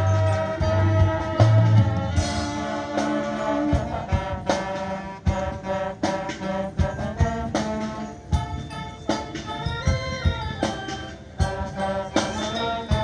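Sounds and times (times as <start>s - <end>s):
brass sustained chords: 0.0s - 8.4s.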